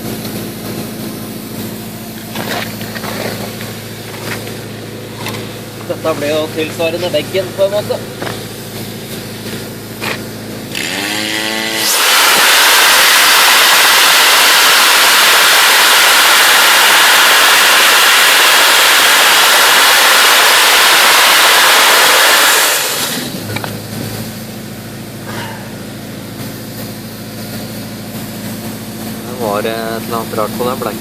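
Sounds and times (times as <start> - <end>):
blasting machine humming: 0.0 - 31.0
dry ice blasting hiss: 10.7 - 23.5.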